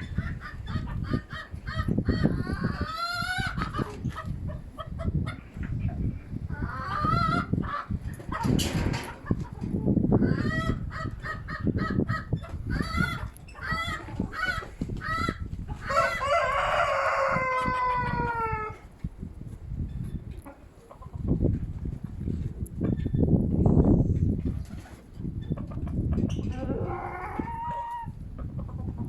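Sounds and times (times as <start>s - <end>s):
chickens clucking: 0.0s - 19.2s, 19.8s - 23.3s, 24.2s - 29.0s
wind rumbling on microphone: 0.0s - 29.0s
rooster crowing: 15.9s - 18.8s.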